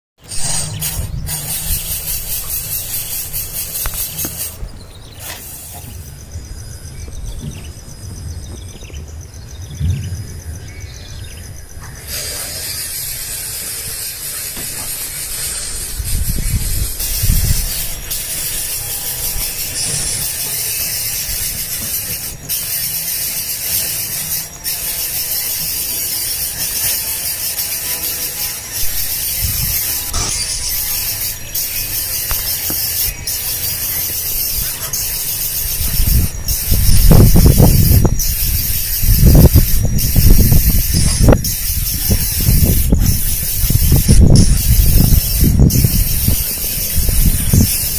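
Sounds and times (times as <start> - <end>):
steady high hiss: 0.2 - 47.9
young birds raspy begging calls: 11.8 - 47.9.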